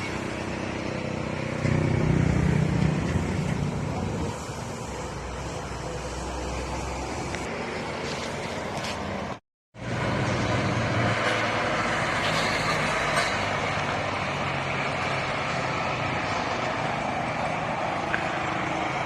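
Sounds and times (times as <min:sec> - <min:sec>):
road traffic: 0:00.0 - 0:19.0
truck engine passing: 0:00.0 - 0:19.0.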